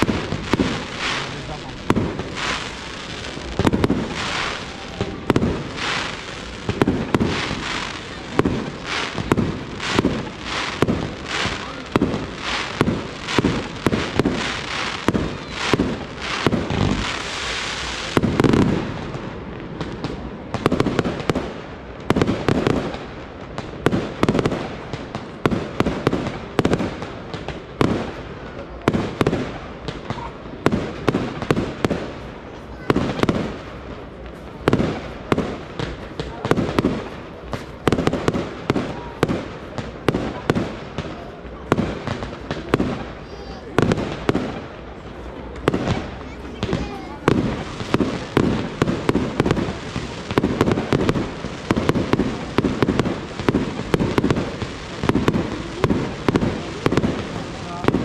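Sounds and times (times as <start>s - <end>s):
firework shells bursting: 0.0s - 18.8s
firework hiss: 0.0s - 58.0s.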